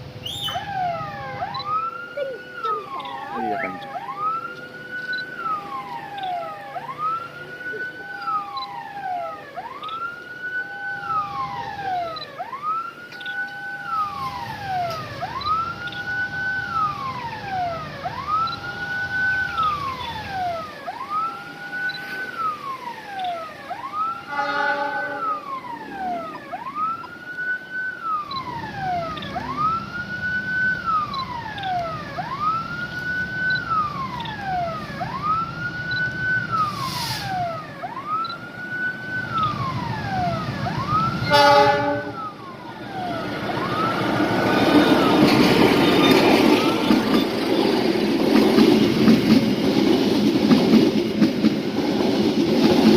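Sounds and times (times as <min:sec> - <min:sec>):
level-crossing siren wailing: 0:00.0 - 0:52.9
train rumbling: 0:00.0 - 0:52.9
short horn blast: 0:24.3 - 0:25.3, 0:41.3 - 0:42.2.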